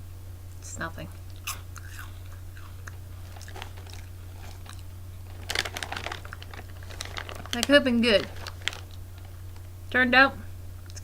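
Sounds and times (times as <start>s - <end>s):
person chewing crunchy crisps: 1.3s - 7.7s.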